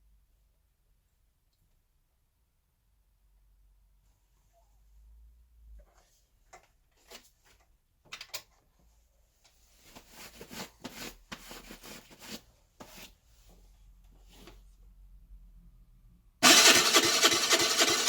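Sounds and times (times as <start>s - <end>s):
rustling and scraping: 8.8s - 14.8s.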